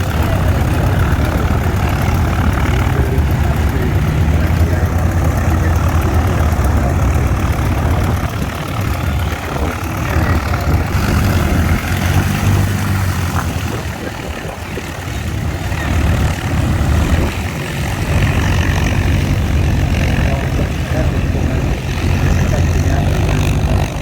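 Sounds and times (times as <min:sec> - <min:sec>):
propeller aircraft engine: 0:00.0 - 0:24.0.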